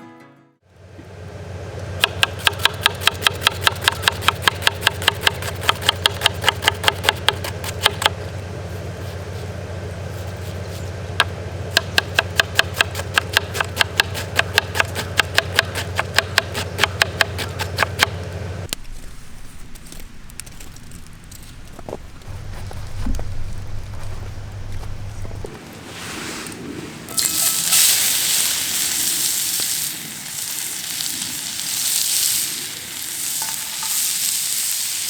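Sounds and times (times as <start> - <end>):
knife chopping on wooden board: 2.0 - 8.2, 10.5 - 18.2
low rumble: 18.2 - 25.6.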